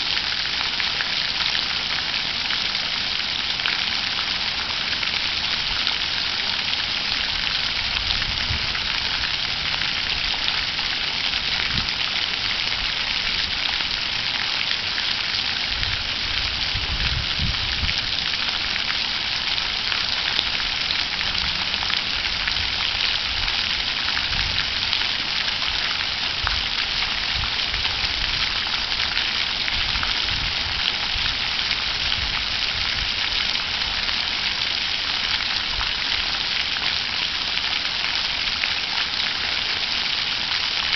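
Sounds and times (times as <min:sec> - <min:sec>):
water fountain splashing: 0:00.0 - 0:40.9.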